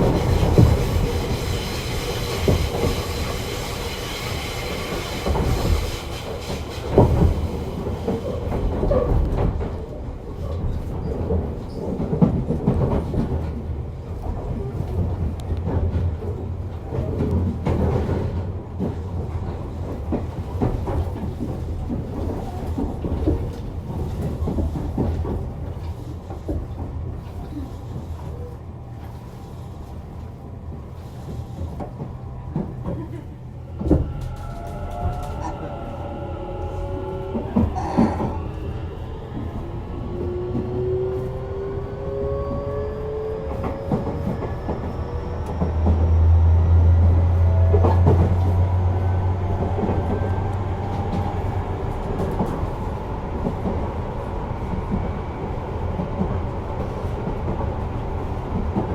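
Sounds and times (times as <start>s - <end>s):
train rumble: 0.0s - 58.9s.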